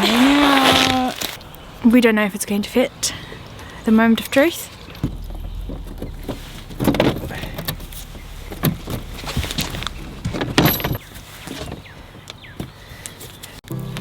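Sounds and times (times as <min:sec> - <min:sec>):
fitting scraping and clunking: 0:05.0 - 0:11.0.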